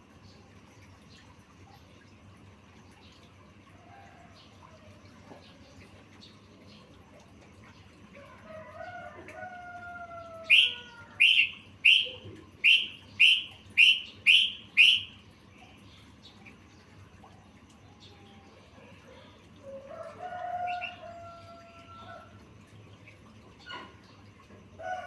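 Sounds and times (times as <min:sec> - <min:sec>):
bird whistling: 0:10.4 - 0:15.2
bird chirping sharply: 0:10.5 - 0:15.2.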